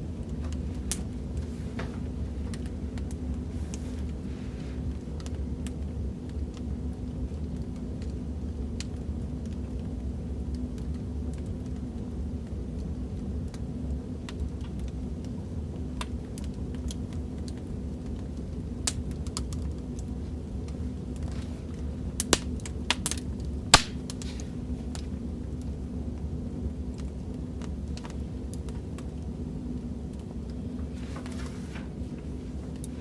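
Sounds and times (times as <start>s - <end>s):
burning wood rumble: 0.0s - 33.0s
fire pops and snaps: 0.2s - 4.2s, 12.8s - 26.3s.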